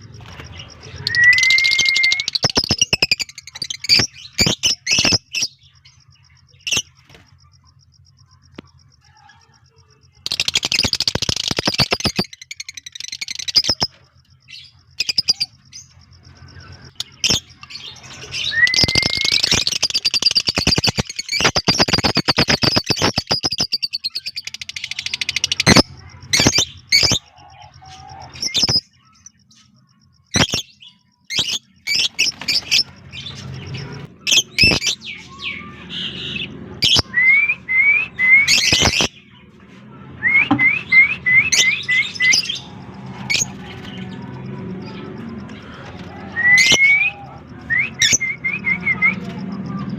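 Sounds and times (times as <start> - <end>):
lovebirds chirping: 0.0 - 37.1.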